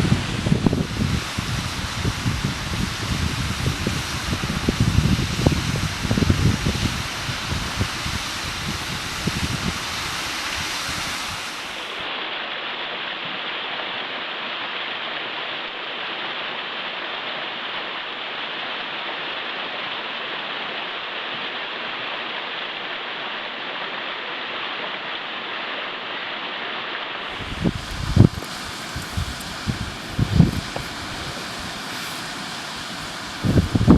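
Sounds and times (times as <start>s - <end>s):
wind buffeting microphone: 0.0s - 11.8s, 27.3s - 33.9s
waterfall rushing: 0.0s - 12.6s, 27.2s - 33.9s.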